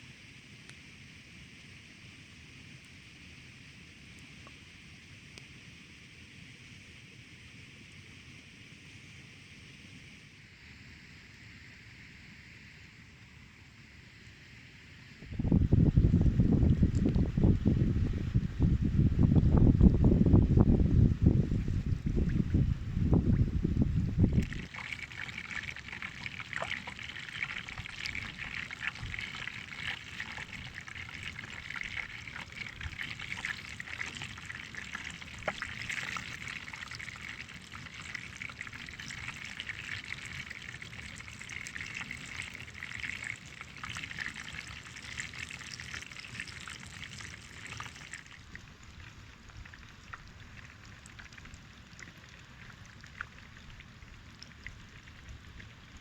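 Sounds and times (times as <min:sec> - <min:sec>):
hot oil sizzling and popping: 0:24.2 - 0:53.4.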